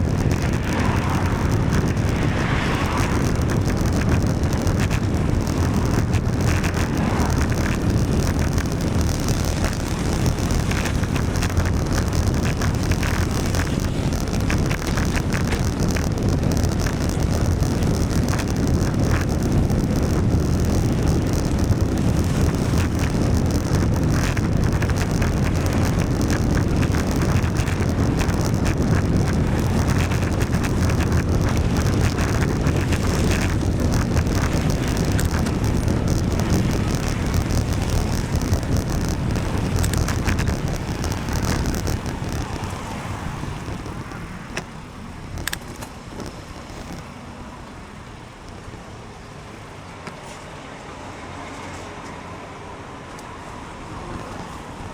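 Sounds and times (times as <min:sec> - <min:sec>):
wind buffeting microphone: 0:00.0 - 0:49.4
bicycle tyres on wet road: 0:00.0 - 0:54.9.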